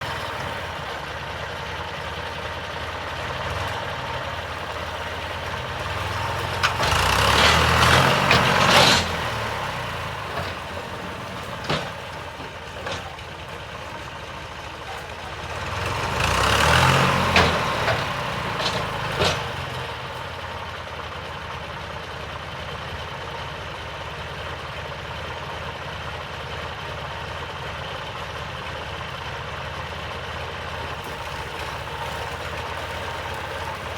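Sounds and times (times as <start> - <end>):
tractor engine revving: 0.0 - 21.0, 30.7 - 33.9.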